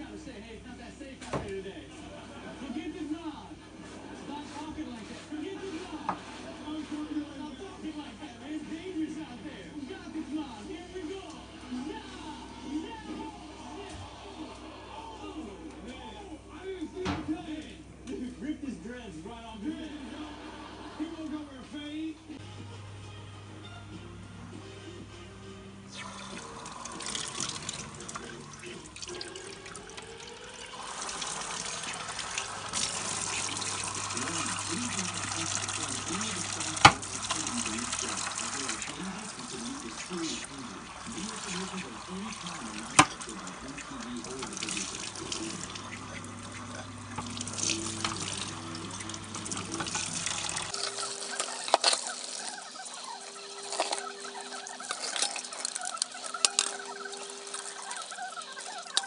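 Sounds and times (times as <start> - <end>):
water running from a tap: 25.9 - 52.7, 53.6 - 59.0.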